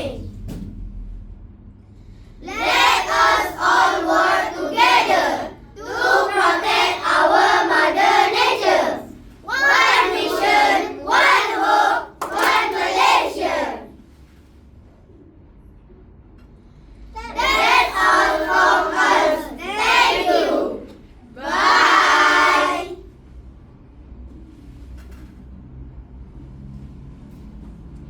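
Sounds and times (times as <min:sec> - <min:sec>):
children chanting in unison: 0:00.0 - 0:00.4, 0:02.4 - 0:14.0, 0:17.2 - 0:23.1.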